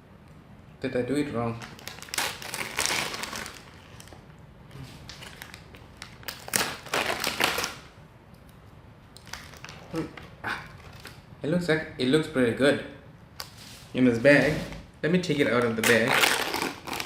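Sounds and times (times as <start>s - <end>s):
plastic bag crinkling: 1.6s - 7.9s, 9.2s - 10.1s, 15.6s - 17.0s.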